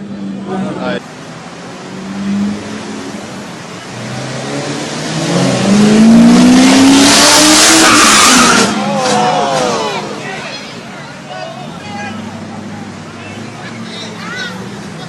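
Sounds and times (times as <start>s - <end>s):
race car engine accelerating: 0.0s - 10.3s.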